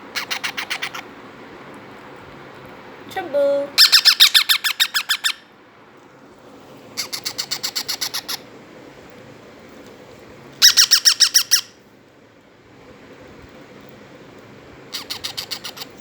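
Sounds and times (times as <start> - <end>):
parrot chicks squawking: 0.1 - 1.1, 3.8 - 5.5, 7.0 - 8.5, 10.6 - 11.8, 14.9 - 16.0.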